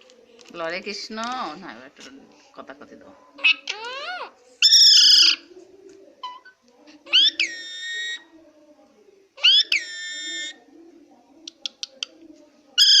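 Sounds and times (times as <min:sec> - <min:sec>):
parrot giving harsh calls: 0:03.4 - 0:05.4, 0:07.1 - 0:08.2, 0:09.4 - 0:10.6, 0:12.8 - 0:13.0.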